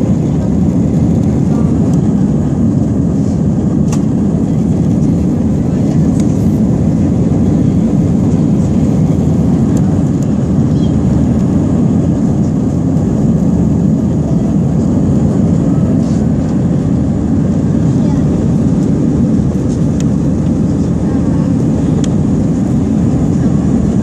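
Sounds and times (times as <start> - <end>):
jet engines rumbling in cabin: 0.0 - 24.0.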